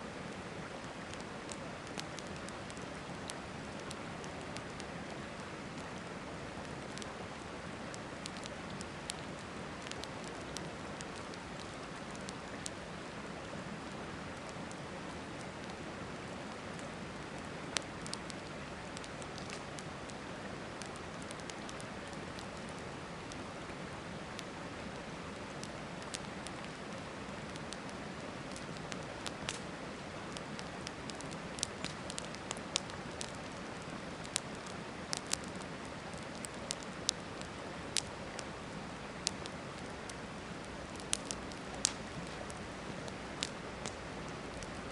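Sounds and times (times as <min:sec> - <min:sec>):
campfire crackling: 0:00.0 - 0:44.9
sharp pops of fire: 0:29.2 - 0:29.7, 0:30.4 - 0:33.4, 0:40.9 - 0:44.0.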